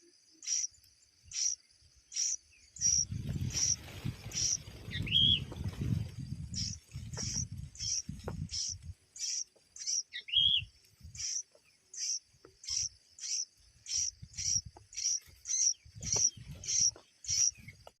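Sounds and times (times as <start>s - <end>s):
birds chirping: 0.0s - 18.0s
soft low thuds: 5.0s - 9.0s.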